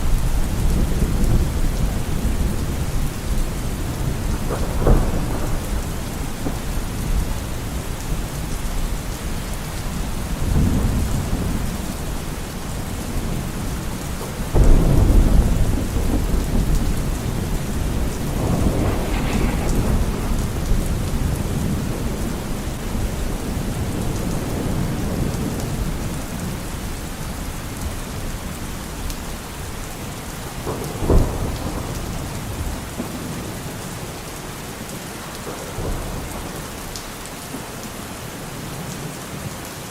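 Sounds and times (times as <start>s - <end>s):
rolling thunder: 0.0s - 8.9s, 10.0s - 26.8s, 30.5s - 33.7s
steady rain: 0.0s - 39.9s.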